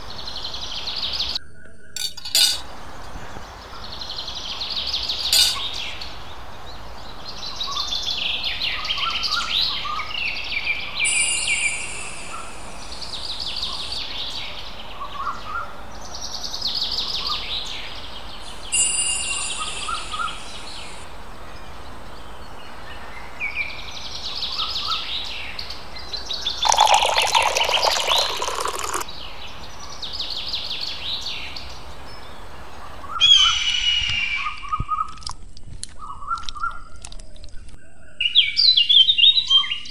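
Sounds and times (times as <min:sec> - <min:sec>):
light metal clink: 0:02.0 - 0:02.7, 0:05.4 - 0:05.7.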